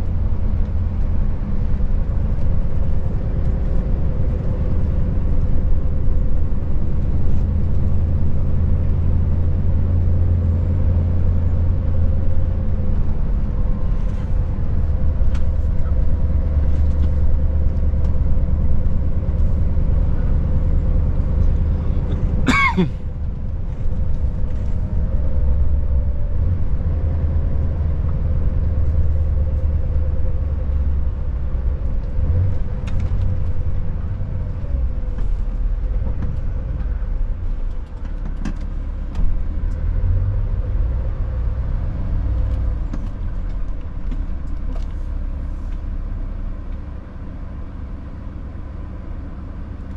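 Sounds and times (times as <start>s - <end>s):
road noise: 0.0s - 49.9s
truck diesel engine droning: 0.0s - 49.9s.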